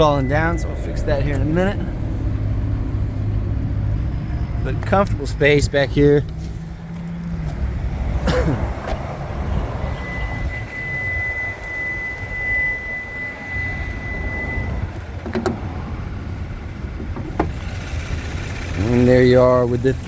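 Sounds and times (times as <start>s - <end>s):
car engine idling: 0.0s - 20.0s
clunk: 17.0s - 17.7s.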